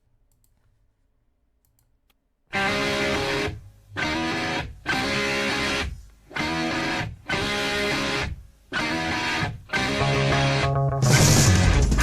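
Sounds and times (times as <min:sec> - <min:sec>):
distorted electric guitar riff: 0:02.5 - 0:12.0.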